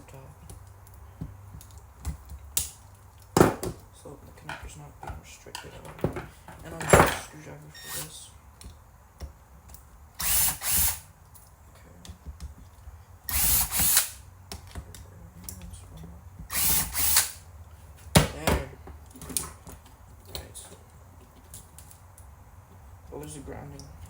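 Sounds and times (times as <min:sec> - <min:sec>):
power screwdriver running: 0:10.2 - 0:11.1, 0:13.3 - 0:14.2, 0:16.5 - 0:17.4.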